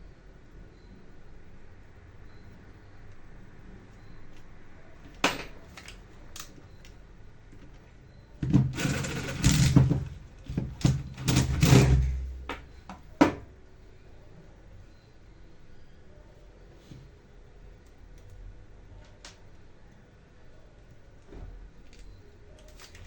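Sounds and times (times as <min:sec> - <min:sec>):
clattering and scraping: 0:08.4 - 0:12.6.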